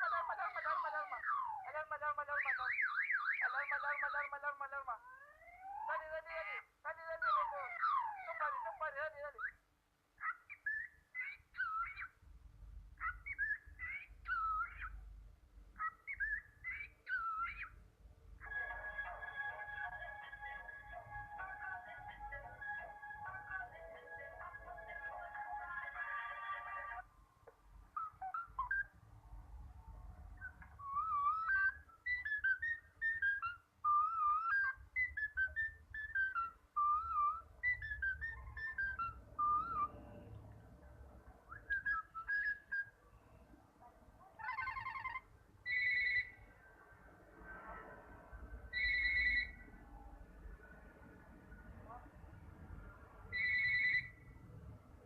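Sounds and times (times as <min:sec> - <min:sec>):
bird whistling: 0:13.0 - 0:15.0, 0:15.8 - 0:17.8, 0:28.0 - 0:29.0, 0:30.4 - 0:40.0, 0:41.5 - 0:43.0, 0:44.4 - 0:46.4, 0:48.7 - 0:49.7, 0:53.3 - 0:54.2.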